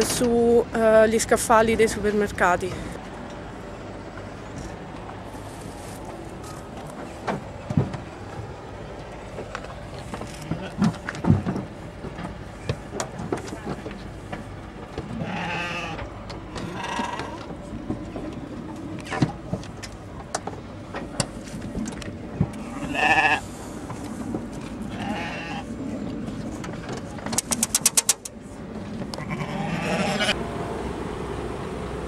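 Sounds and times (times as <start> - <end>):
steady low rumble: 0.0 - 32.0
sheep bleating: 15.2 - 16.0, 16.6 - 17.5, 22.6 - 23.4, 24.9 - 25.6, 29.2 - 30.4
rattle of sharp clicks: 27.3 - 28.4.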